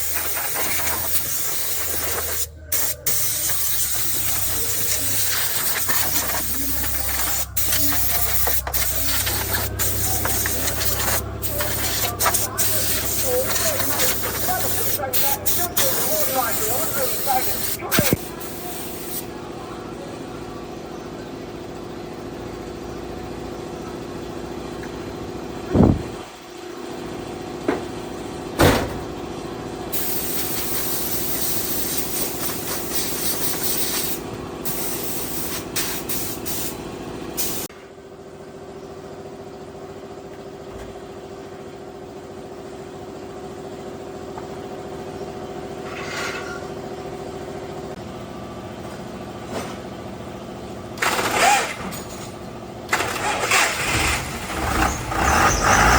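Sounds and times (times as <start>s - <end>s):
hiss of air or spray: 0.0s - 19.3s, 30.0s - 36.8s, 37.4s - 37.7s
mechanical hum: 0.0s - 55.9s.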